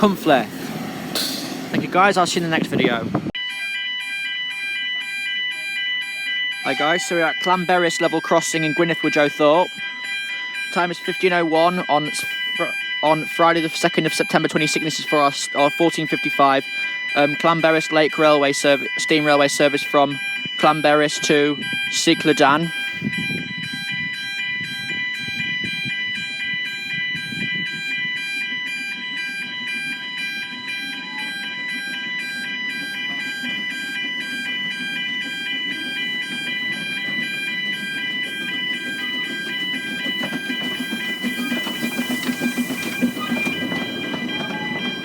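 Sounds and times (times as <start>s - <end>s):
train rumble and hiss: 0.0s - 3.3s, 32.7s - 45.0s
level crossing alarm pulsing: 0.0s - 45.0s.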